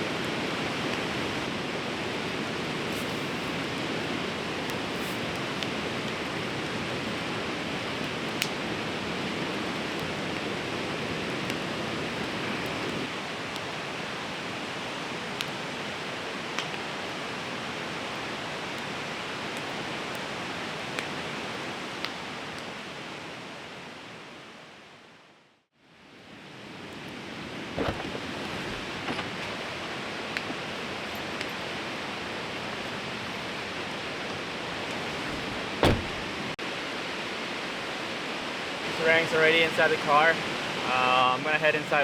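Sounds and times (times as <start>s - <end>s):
campfire popping and crackling: 0.2s - 22.7s, 27.6s - 35.5s
river rushing: 26.6s - 42.0s.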